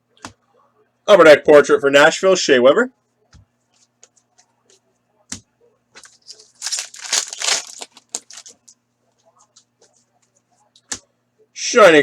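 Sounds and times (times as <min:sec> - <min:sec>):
wrapper tearing and crinkling: 0:06.0 - 0:08.7.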